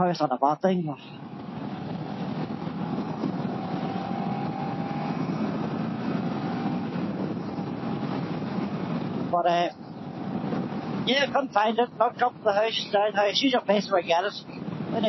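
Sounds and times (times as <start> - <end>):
road noise: 0.0 - 15.0
wind rushing: 1.1 - 15.0
motorcycle engine: 1.2 - 11.1.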